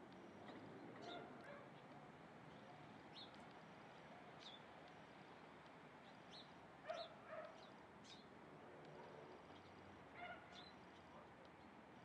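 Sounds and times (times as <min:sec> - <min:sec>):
dog barking: 0:06.9 - 0:07.6, 0:10.2 - 0:10.6.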